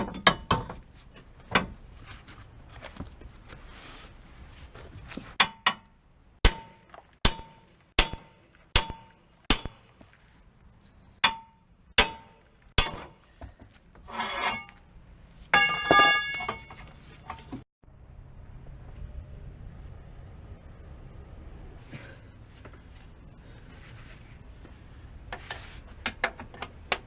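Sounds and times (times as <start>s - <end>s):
ringing metallic clank: 5.4s - 9.8s, 11.2s - 13.1s, 15.6s - 17.5s
metal-on-metal strikes: 5.4s - 9.9s, 11.2s - 13.2s, 15.6s - 16.8s
metal scrape: 14.0s - 17.6s, 25.3s - 26.0s.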